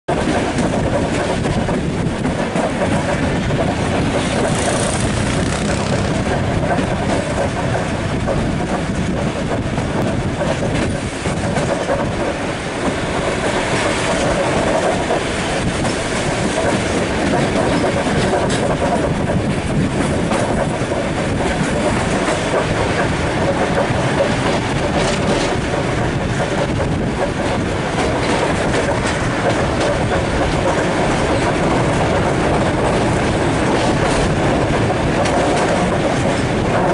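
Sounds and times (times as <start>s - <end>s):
train wheels on rails: 0.1s - 36.9s.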